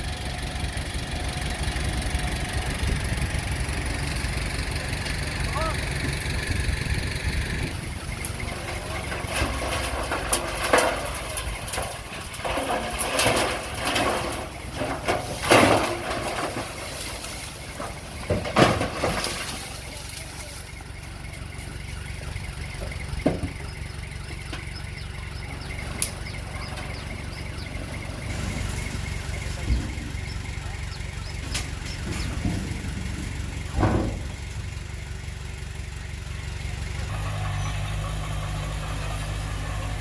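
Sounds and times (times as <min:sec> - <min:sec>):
heavy machine engine running: 0:00.0 - 0:40.0.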